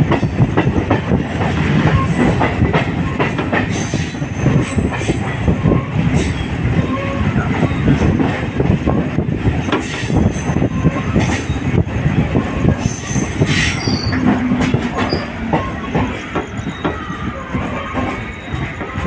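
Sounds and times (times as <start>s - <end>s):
train wheels rumbling on rails: 0.0s - 19.0s
high-pitched wheel squeals: 12.5s - 19.0s.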